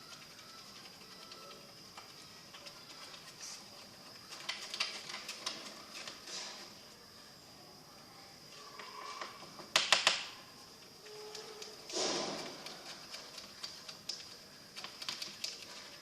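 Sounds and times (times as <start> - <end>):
faint high whine: 0.0 - 4.5, 5.4 - 9.6
sharp clicks: 9.7 - 10.4.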